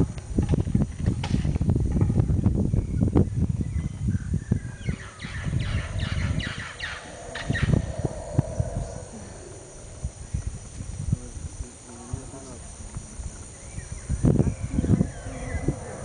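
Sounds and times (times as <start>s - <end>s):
wind rumble on microphone: 0.0s - 16.0s
bird calling in repeated notes: 4.6s - 10.0s.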